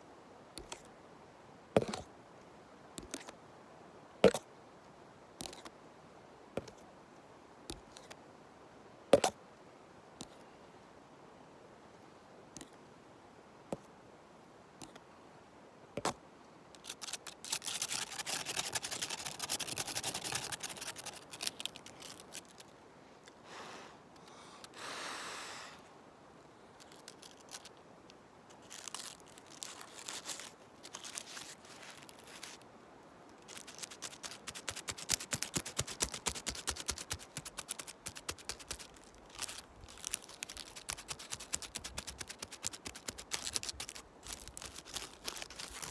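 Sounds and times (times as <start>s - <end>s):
dry leaves crackling: 16.8s - 22.7s, 26.8s - 27.8s, 28.5s - 32.6s, 33.4s - 45.9s.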